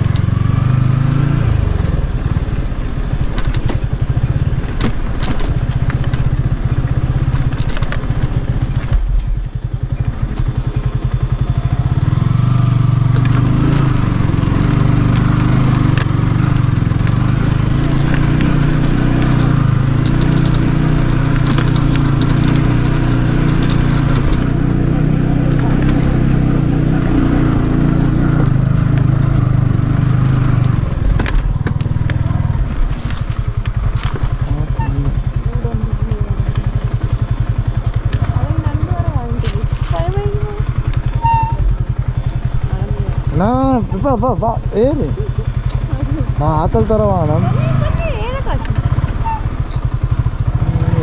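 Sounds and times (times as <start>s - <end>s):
vehicle engine running: 0.0s - 51.0s.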